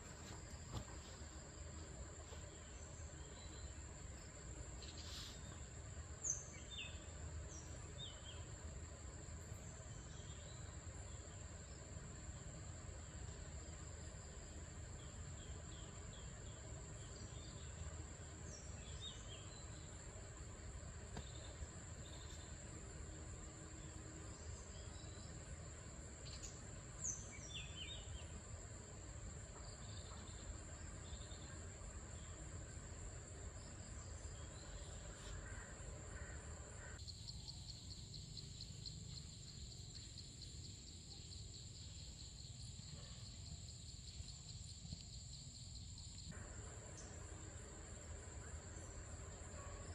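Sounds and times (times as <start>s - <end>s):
lower pulsing insect trill: 0.0s - 49.9s.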